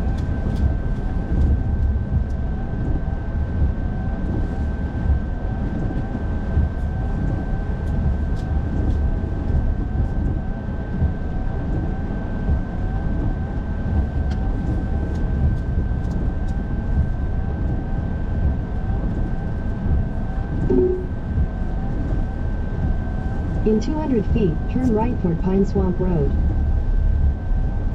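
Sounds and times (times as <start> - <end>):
thin steady whine: 0.0 - 27.9.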